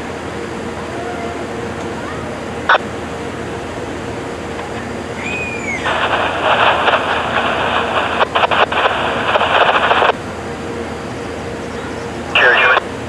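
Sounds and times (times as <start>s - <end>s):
low background rumble: 0.0s - 13.0s
hissy radio transmission noise: 5.4s - 10.2s, 11.8s - 12.9s
radio falling chirp: 5.6s - 10.1s, 12.4s - 12.8s.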